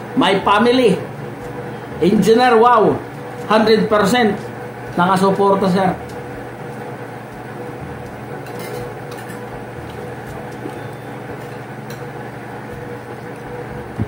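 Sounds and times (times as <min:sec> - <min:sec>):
background hum: 0:03.0 - 0:14.0
spoons clinking against dishes: 0:08.4 - 0:09.6.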